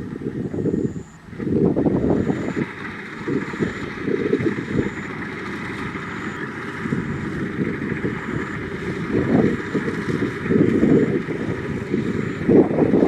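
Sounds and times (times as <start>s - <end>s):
combine harvester running: 0.0s - 13.0s
wind buffeting microphone: 0.0s - 13.0s
faint high beep: 0.5s - 1.2s, 2.0s - 5.2s, 5.8s - 9.7s.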